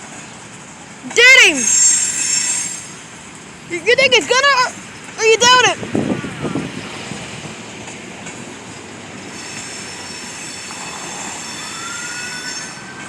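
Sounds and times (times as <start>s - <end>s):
train wheels rumbling on rail: 0.0s - 13.0s
high wheel squeal: 1.2s - 3.3s, 8.7s - 13.0s.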